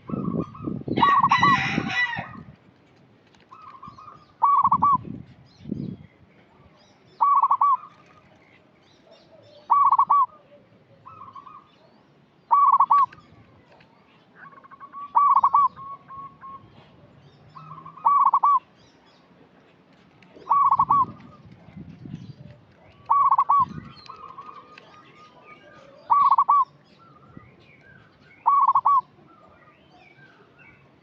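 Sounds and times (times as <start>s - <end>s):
dove cooing: 0.0s - 1.9s, 3.5s - 5.0s, 7.2s - 8.1s, 9.4s - 11.7s, 12.5s - 13.2s, 14.4s - 16.7s, 17.6s - 18.7s, 20.3s - 21.5s, 22.8s - 26.7s, 28.4s - 29.1s.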